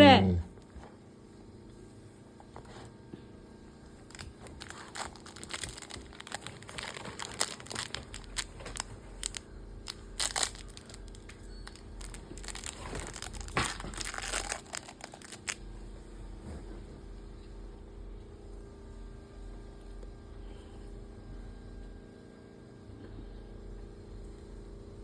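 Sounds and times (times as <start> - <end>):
toy crinkling and crunching: 4.0 - 15.6.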